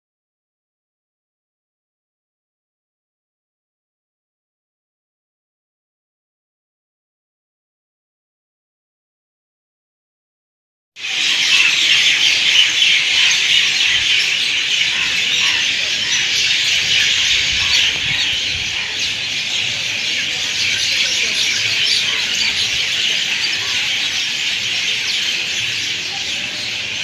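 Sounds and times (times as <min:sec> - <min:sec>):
many birds chirping: 0:11.0 - 0:27.0.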